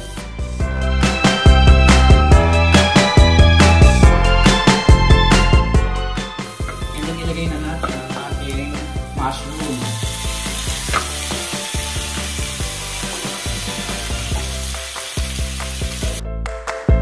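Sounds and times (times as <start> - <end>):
oil sizzling in a wok: 6.3 - 16.2.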